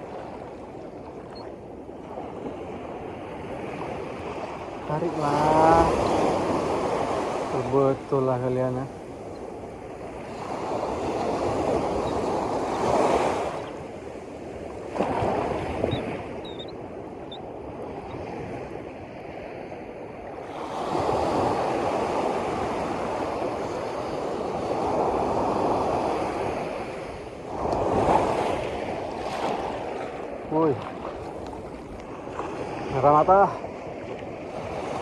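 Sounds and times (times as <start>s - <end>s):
sea waves washing in: 0.0s - 35.0s
wind buffeting microphone: 0.0s - 35.0s.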